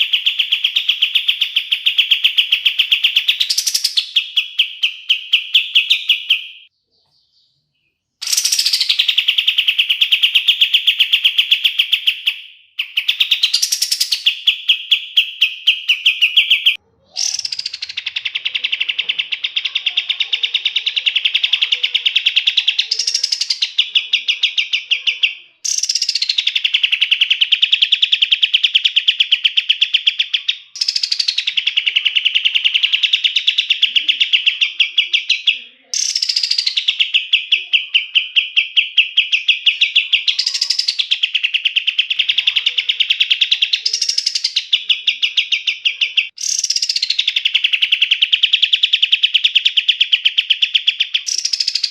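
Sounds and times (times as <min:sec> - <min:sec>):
songbird singing rolling trills: 0:00.0 - 0:51.9.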